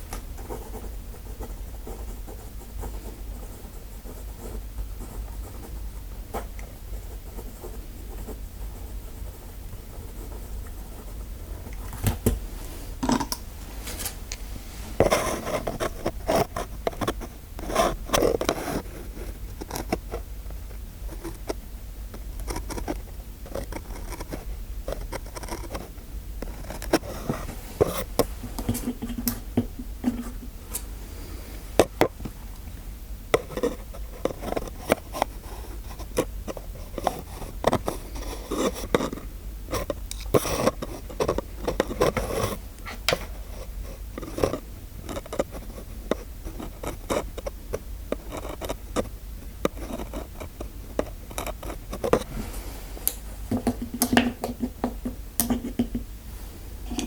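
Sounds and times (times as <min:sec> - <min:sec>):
close scraping and scratching: 0:07.3 - 0:21.6, 0:22.4 - 0:29.4, 0:33.3 - 0:56.0.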